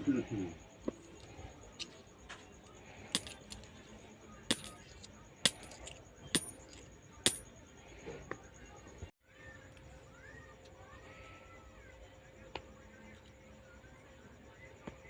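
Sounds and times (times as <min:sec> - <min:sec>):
coins dropping with metallic clinks: 0:03.1 - 0:07.5.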